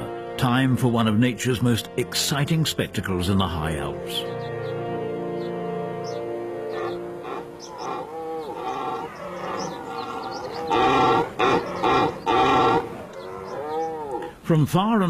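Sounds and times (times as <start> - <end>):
deer stags roaring: 6.6 - 14.4.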